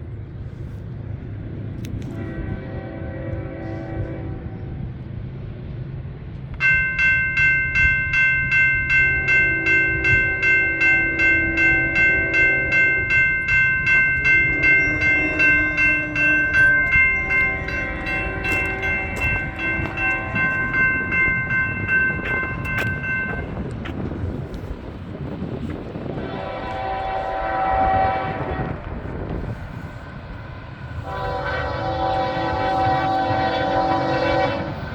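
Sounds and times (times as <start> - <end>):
railroad crossing bell ringing: 6.6 - 24.8, 30.9 - 34.9.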